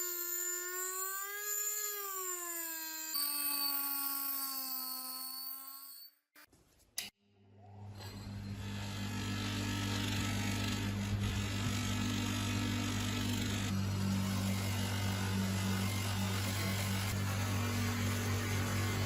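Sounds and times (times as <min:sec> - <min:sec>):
power tool motor humming: 0:00.0 - 0:05.9.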